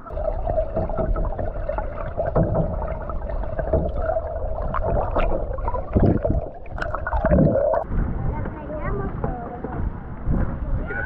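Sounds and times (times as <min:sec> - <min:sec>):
paddles splashing in water: 0:00.0 - 0:07.9
wind rumble on microphone: 0:04.6 - 0:11.0.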